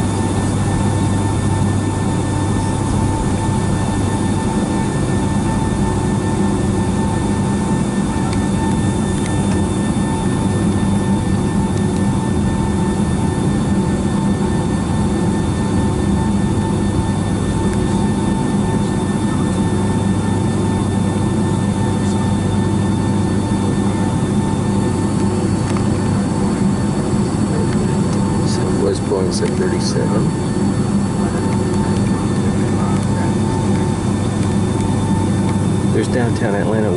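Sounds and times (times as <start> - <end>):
constant engine whine: 0.0 - 36.9
jet engine hum from cabin: 0.0 - 36.9.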